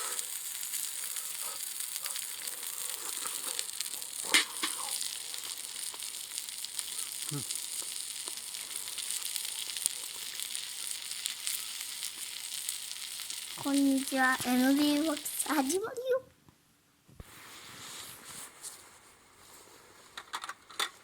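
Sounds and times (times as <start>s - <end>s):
wood fire hissing and crackling: 0.0s - 16.0s, 17.2s - 20.2s
sharp pop of fire: 4.2s - 5.0s.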